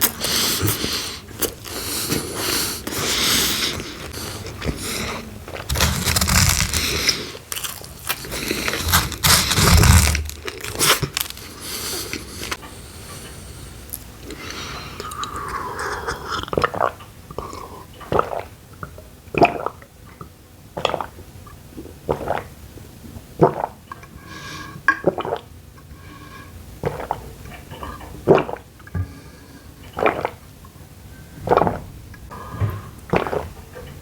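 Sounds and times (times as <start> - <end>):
person chewing food: 0.0 - 12.7.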